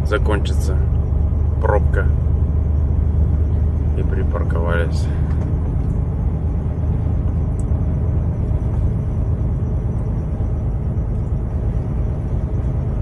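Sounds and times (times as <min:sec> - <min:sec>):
road noise: 0:00.0 - 0:13.0
truck engine rumble: 0:00.0 - 0:13.0.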